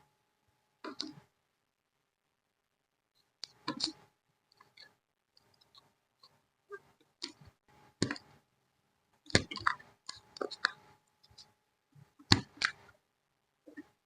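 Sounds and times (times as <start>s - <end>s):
crafting tools tapping and clicking: 7.0s - 8.4s, 9.3s - 12.9s.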